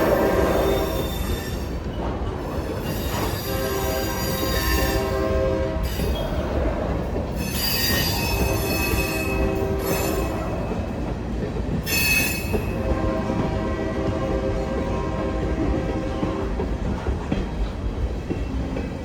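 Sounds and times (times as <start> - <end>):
train wheels squealing on rails: 0.0 - 14.2
freight train rumbling by: 0.0 - 19.0.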